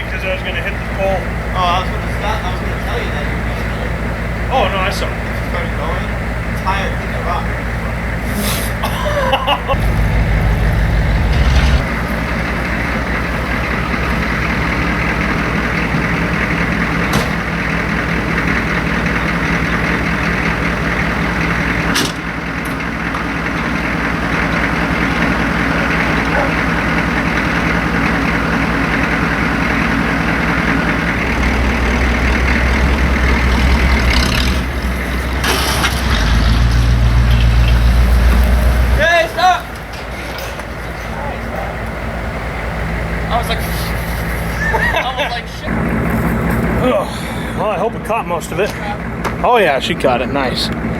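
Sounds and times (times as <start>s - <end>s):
vehicle engine running: 0.0s - 50.9s.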